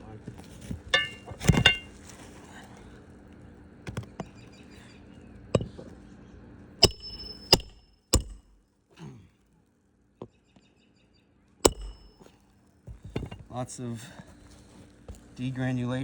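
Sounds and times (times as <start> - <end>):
metallic nail driver strikes: 6.8 - 8.6, 11.7 - 12.2.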